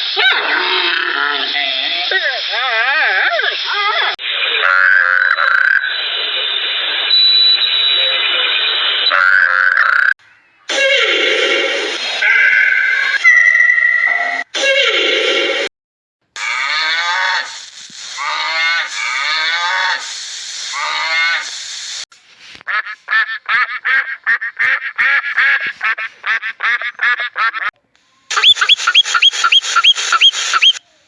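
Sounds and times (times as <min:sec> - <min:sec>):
quick chirps: 0:28.3 - 0:30.9.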